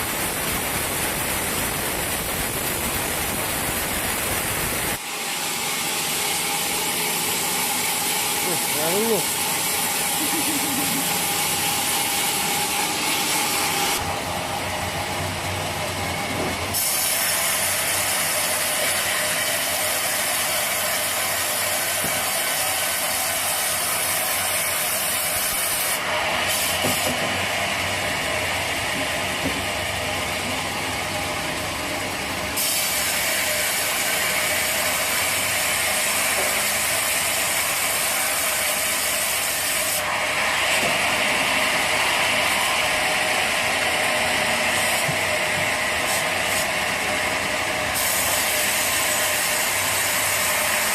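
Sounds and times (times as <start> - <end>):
sawmill machinery clatter: 0.0 - 50.9
machine hiss: 16.7 - 27.5, 32.6 - 46.8, 47.6 - 50.9.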